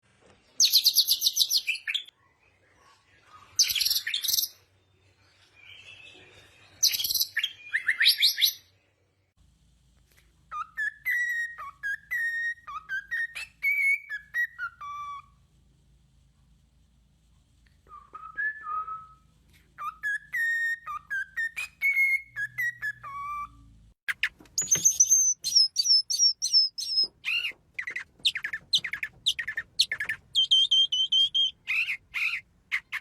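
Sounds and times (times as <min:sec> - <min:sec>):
bird whistled song: 0:00.6 - 0:02.1, 0:03.6 - 0:04.6, 0:05.6 - 0:08.7, 0:10.5 - 0:15.4, 0:17.8 - 0:33.0
bird rapid trilled song: 0:24.1 - 0:33.0.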